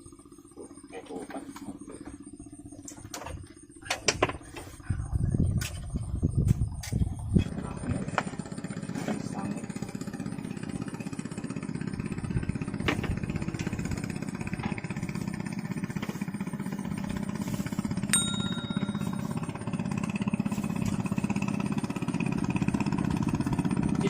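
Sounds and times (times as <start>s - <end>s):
small engine chugging: 0.0s - 24.0s
ringing metallic ping: 18.0s - 20.2s.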